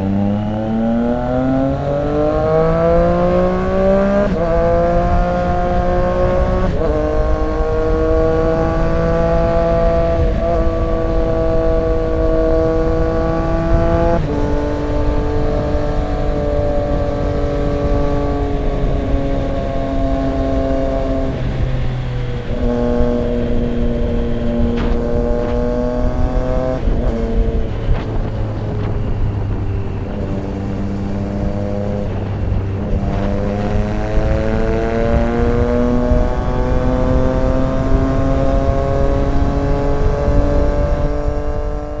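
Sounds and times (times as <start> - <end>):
motorcycle engine revving: 0.0 - 42.0
exhaust cracks: 16.6 - 42.0.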